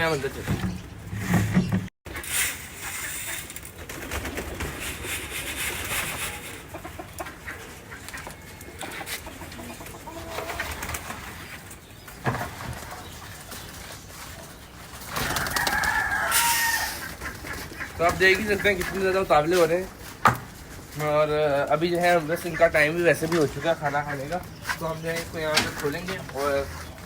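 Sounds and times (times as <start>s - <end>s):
pigeons pecking and scuffling: 0.0s - 27.0s
loud scraping: 0.3s - 3.7s
pigeons cooing: 4.0s - 11.6s.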